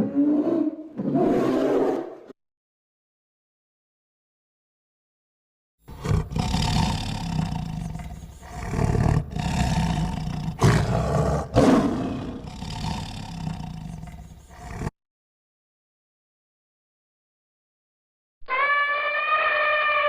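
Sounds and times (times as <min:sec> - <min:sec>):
big cat roaring and growling: 0:00.0 - 0:02.2, 0:05.9 - 0:14.9.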